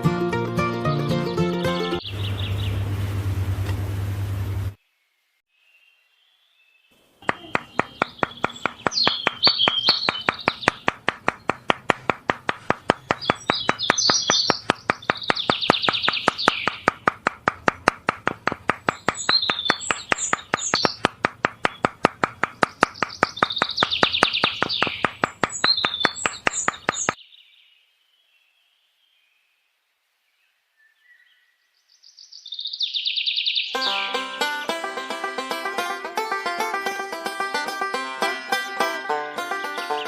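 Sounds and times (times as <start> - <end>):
birds chirping and warbling: 1.6 - 3.0, 5.6 - 12.0, 12.6 - 17.7, 18.8 - 29.5, 30.4 - 34.0
steady ticking clicks: 7.3 - 27.2.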